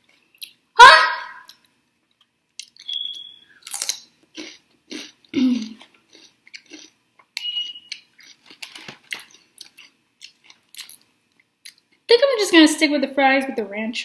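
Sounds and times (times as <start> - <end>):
wet chewing and biting: 2.6 - 11.9
person throat sound: 5.0 - 5.8.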